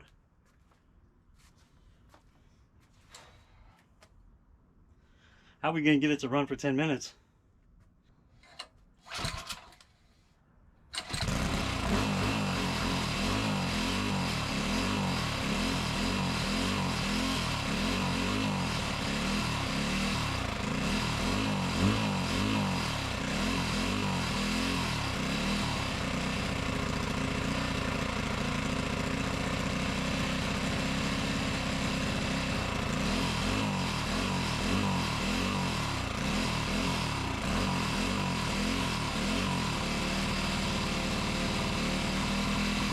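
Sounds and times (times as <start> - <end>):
mini bike engine running: 11.0 - 42.9.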